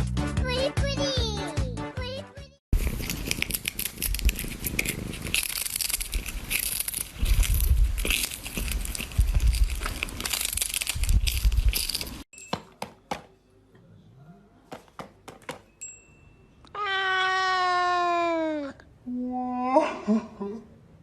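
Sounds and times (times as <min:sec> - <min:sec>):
rough crackling rustling: 0:02.8 - 0:12.3
cat meowing: 0:16.7 - 0:18.8.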